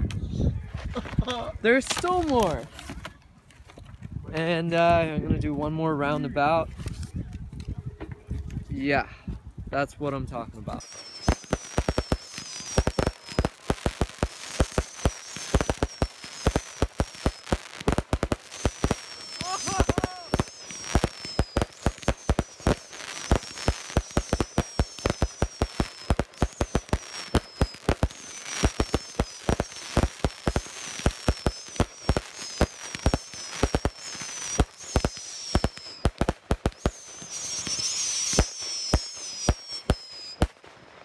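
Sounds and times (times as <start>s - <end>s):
crackling hiss: 10.7s - 41.0s
falling firework whistles: 10.8s - 40.7s
firework bangs: 10.8s - 40.8s.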